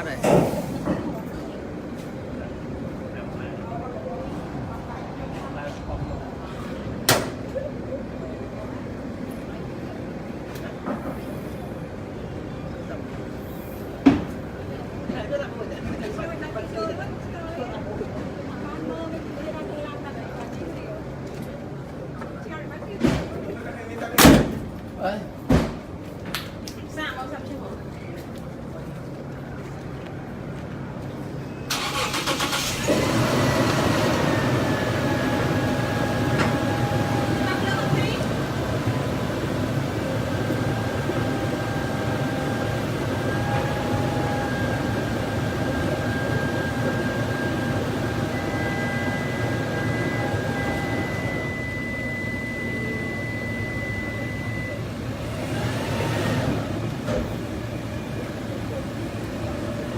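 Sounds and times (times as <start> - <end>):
starter motor cranking: 31.7 - 33.3.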